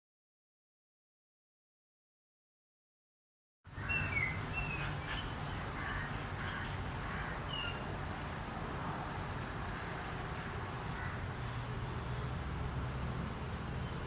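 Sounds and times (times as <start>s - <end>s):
background hiss: 3.7s - 14.0s.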